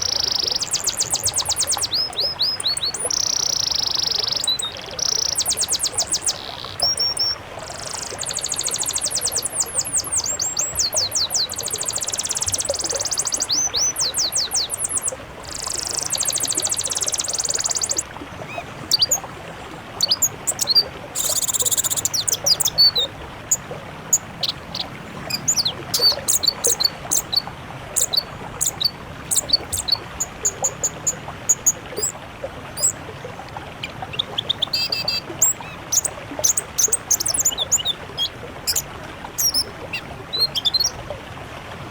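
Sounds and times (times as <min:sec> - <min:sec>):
bird chirps and whistles: 0:00.0 - 0:18.0, 0:20.0 - 0:23.1, 0:25.3 - 0:27.4, 0:28.0 - 0:32.1, 0:34.1 - 0:38.8, 0:39.4 - 0:39.7
songbird rapid high trills: 0:00.0 - 0:19.3, 0:19.9 - 0:32.2, 0:32.8 - 0:33.0, 0:33.8 - 0:40.9.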